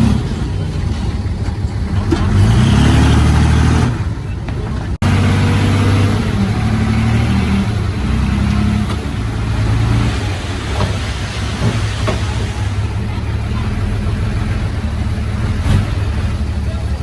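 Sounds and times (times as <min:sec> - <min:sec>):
heavy diesel engine under load: 0:00.0 - 0:17.0.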